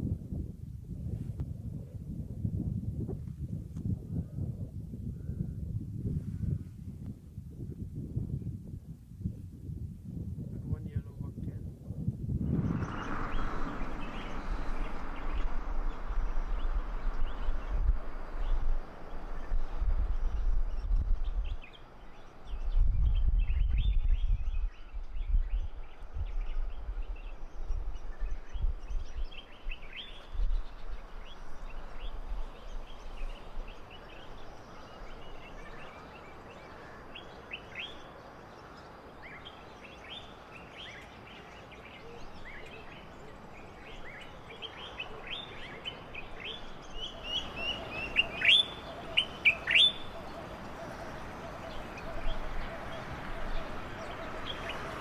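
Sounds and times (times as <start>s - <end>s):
low rumble: 12.2s - 21.3s
birds chirping: 12.5s - 23.4s, 26.4s - 55.0s.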